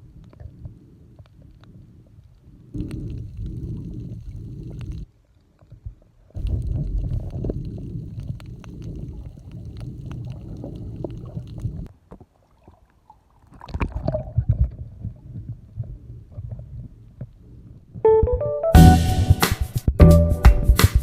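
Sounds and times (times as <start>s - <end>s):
water sloshing against camera: 0.2s - 17.3s
background music: 18.1s - 21.0s.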